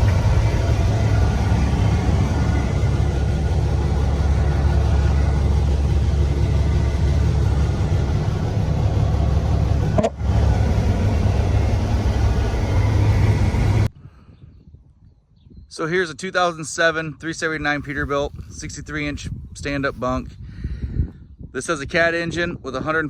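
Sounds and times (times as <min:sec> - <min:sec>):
diesel truck engine droning: 0:00.0 - 0:13.9.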